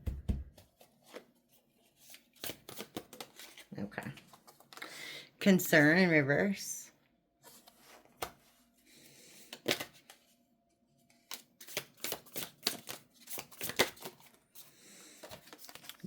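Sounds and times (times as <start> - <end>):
cards snapping and slapping: 2.4 - 3.4, 9.5 - 10.1, 11.3 - 14.3.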